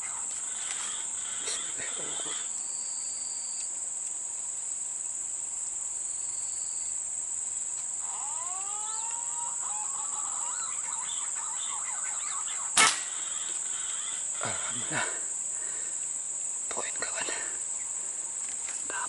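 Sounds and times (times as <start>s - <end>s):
crickets droning: 0.0s - 19.0s
whistled bird calls: 8.1s - 14.9s.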